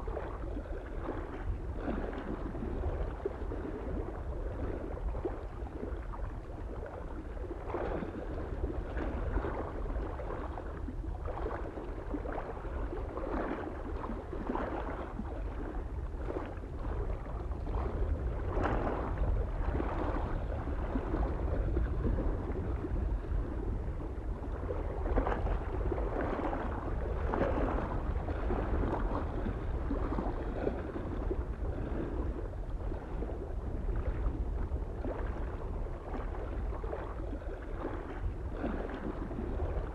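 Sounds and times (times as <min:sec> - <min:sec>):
small waves lapping on shore: 0:00.0 - 0:39.9
wind rumble on microphone: 0:00.0 - 0:39.9.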